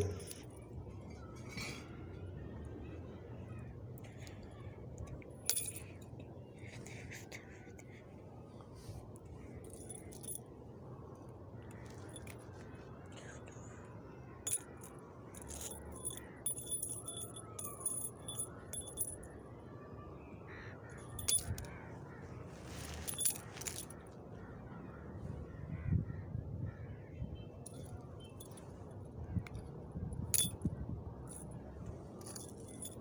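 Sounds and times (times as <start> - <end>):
metal pieces jingling and clinking: 0.0 - 0.6, 5.3 - 6.0, 9.6 - 10.4, 11.8 - 12.4, 14.5 - 19.3, 21.0 - 21.7, 22.9 - 23.9, 27.7 - 28.7, 30.3 - 30.7, 31.3 - 31.6, 32.2 - 33.0
low steady hum: 0.0 - 33.0.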